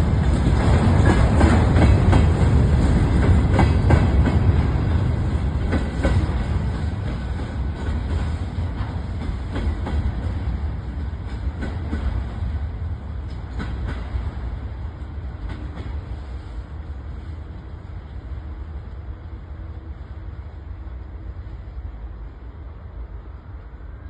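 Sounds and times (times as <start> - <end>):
train wheels clicking over rail joints: 0.0 - 17.8
train low rumble: 0.0 - 24.0.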